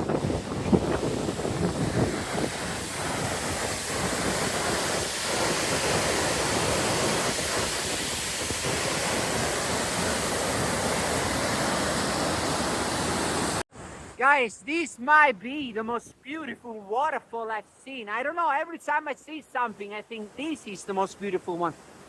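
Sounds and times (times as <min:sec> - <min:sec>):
wind buffeting microphone: 0:00.0 - 0:11.0
waterfall rushing: 0:00.0 - 0:13.6.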